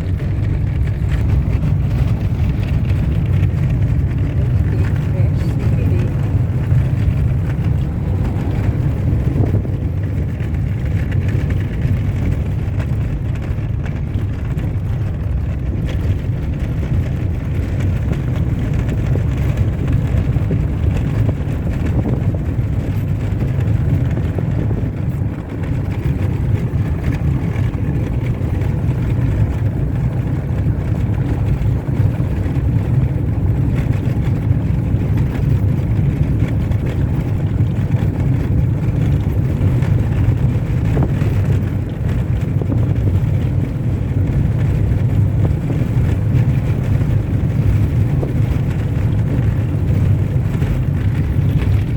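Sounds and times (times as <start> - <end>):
car driving on dirt road: 0.0 - 51.9.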